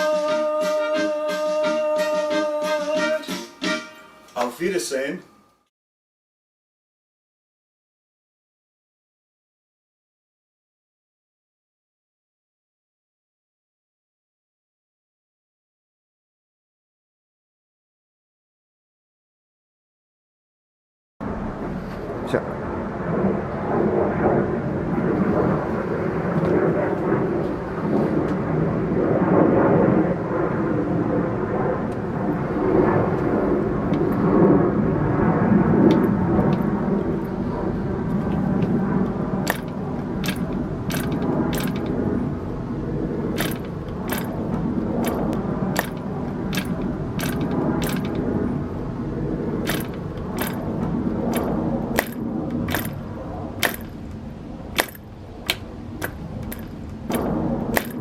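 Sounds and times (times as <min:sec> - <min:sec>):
mechanical running noise: 0:39.1 - 0:58.0
metal parts clicking and clinking: 0:39.5 - 0:42.0, 0:43.4 - 0:44.4, 0:45.0 - 0:48.2, 0:49.6 - 0:50.7, 0:51.3 - 0:53.0, 0:53.6 - 0:54.1, 0:54.8 - 0:55.0, 0:56.0 - 0:58.0.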